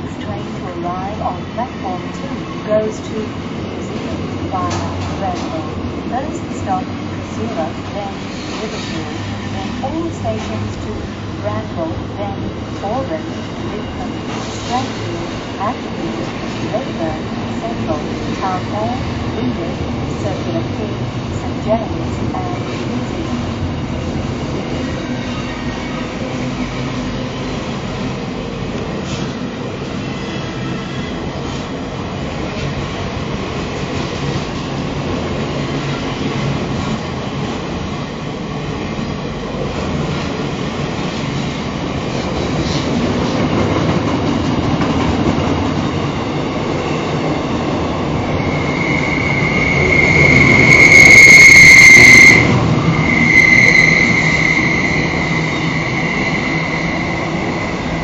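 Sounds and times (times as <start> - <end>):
high wheel squeal: 48.3 - 58.0.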